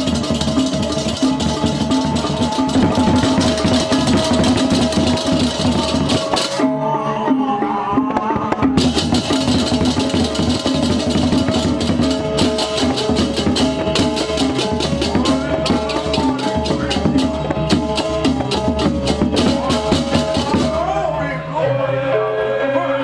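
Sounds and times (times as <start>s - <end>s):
fast cymbal clashing: 0.0s - 6.6s
drums: 0.0s - 6.8s, 7.6s - 21.1s.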